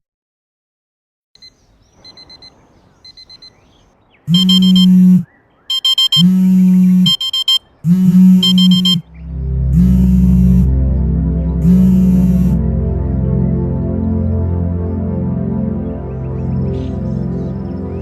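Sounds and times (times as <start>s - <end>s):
alarm clock beeping: 4.3s - 9.0s, 11.6s - 12.6s.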